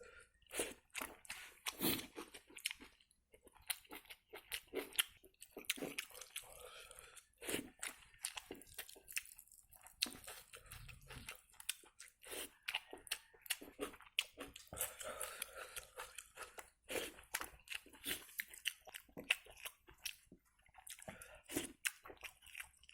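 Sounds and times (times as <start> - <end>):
person chewing food: 0.0 - 22.9.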